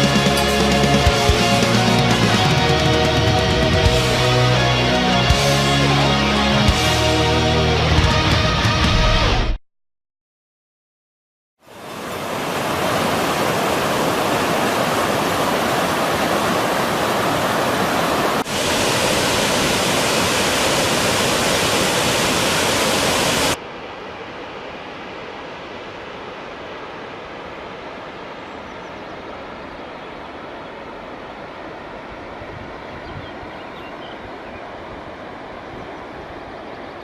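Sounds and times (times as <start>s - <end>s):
waterfall rushing: 11.6s - 23.6s.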